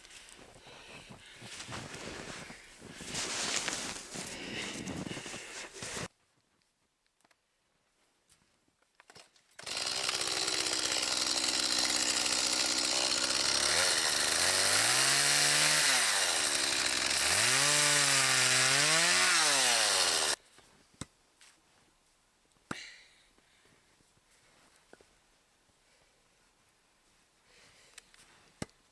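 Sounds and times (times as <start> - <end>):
chainsaw running: 9.6 - 20.4.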